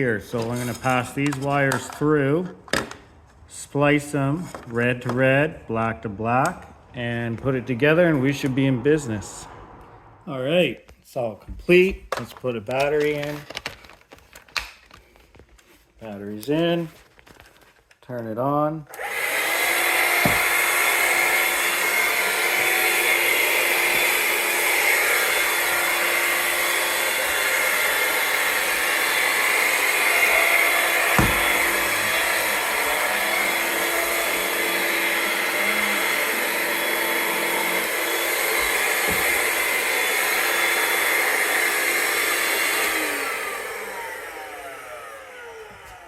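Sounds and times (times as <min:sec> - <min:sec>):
vacuum cleaner motor whine: 0:18.9 - 0:46.0.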